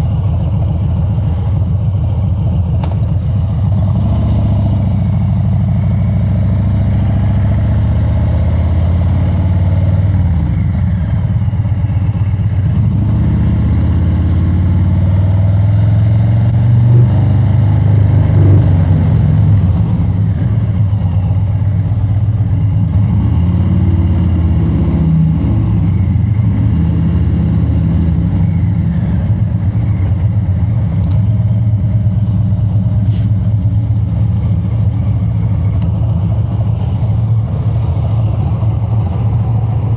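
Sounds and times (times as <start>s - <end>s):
motorcycle engine while riding: 0.0s - 39.9s.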